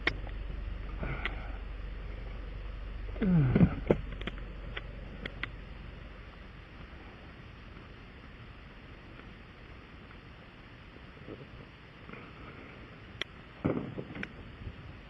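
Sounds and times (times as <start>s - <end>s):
vehicle cabin drone: 0.0s - 15.0s
light clicks and rattles: 3.5s - 5.6s.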